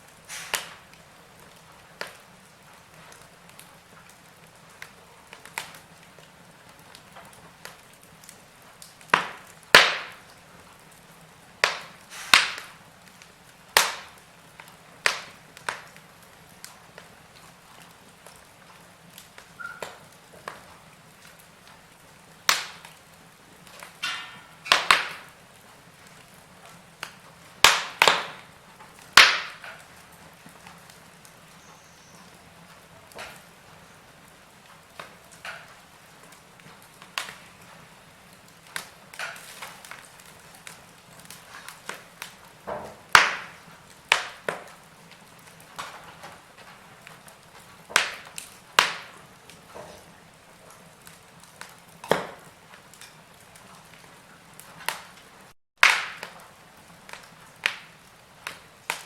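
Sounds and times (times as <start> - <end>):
faint hiss: 0.0 - 6.7, 9.8 - 18.0
wood fire crackling: 0.0 - 59.0.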